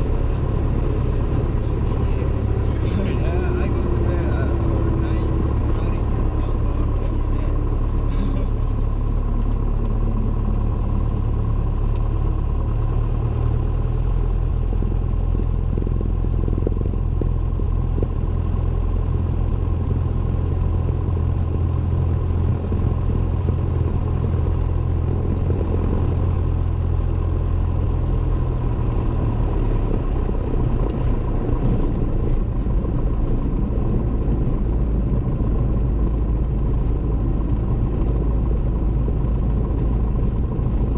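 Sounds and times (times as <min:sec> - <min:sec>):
aircraft engine and propeller droning: 0:00.0 - 0:40.9.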